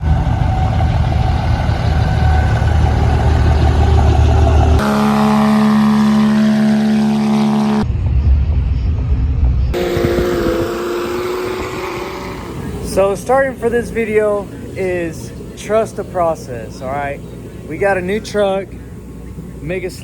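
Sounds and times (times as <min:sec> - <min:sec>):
truck engine held rev: 0:00.0 - 0:07.9, 0:09.7 - 0:15.6
truck engine rumbling: 0:00.0 - 0:20.0.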